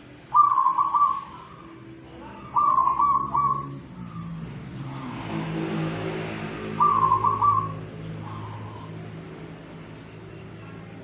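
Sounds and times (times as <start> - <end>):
low drone: 0.0 - 11.0
bird singing whistled phrases: 0.3 - 1.6, 6.8 - 7.8.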